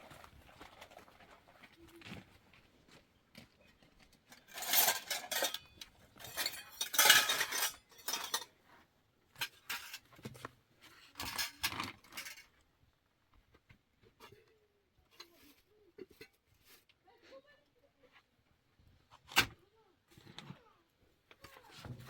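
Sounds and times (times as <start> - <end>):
dishes and utensils clattering: 4.3 - 8.5, 9.4 - 10.1, 11.1 - 12.5.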